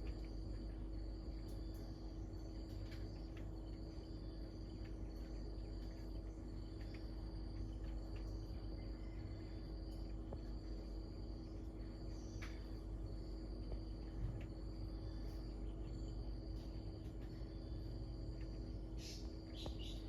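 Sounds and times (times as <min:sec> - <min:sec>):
insects trilling: 0:00.0 - 0:20.0
low rumble and hum: 0:00.0 - 0:20.0.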